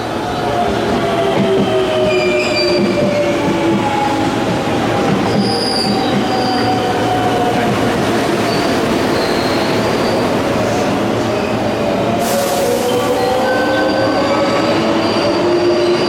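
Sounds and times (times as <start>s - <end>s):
train wheel squeals: 1.4s - 4.1s, 5.2s - 7.2s, 8.4s - 11.6s, 12.3s - 16.0s.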